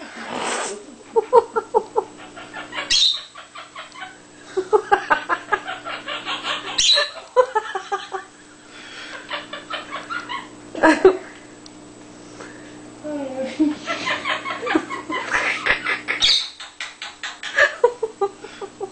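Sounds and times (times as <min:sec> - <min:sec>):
parrot chuckling like laughter: 0:01.1 - 0:08.4, 0:09.0 - 0:11.2, 0:13.8 - 0:18.9
parrot squawk: 0:02.3 - 0:04.2, 0:05.9 - 0:07.2, 0:16.2 - 0:17.5.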